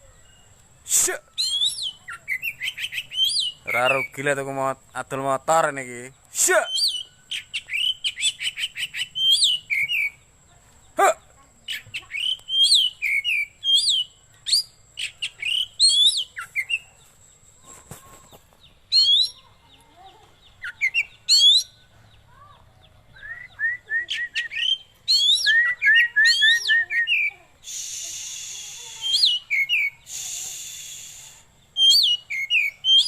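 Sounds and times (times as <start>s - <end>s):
bird singing whistled phrases: 1.3s - 4.3s, 6.6s - 10.3s, 11.6s - 16.9s, 18.9s - 19.5s, 20.6s - 21.9s, 23.1s - 33.0s.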